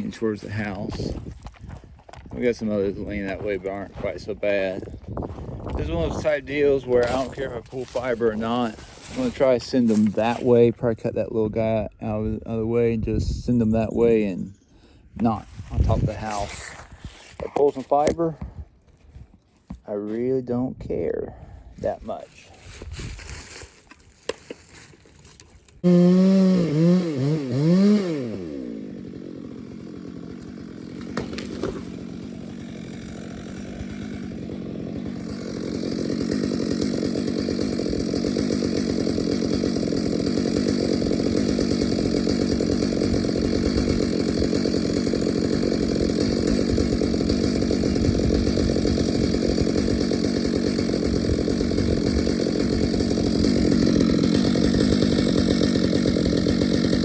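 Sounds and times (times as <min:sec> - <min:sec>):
chainsaw revving and running: 0:00.0 - 0:10.8, 0:15.2 - 0:18.1, 0:25.8 - 0:57.0.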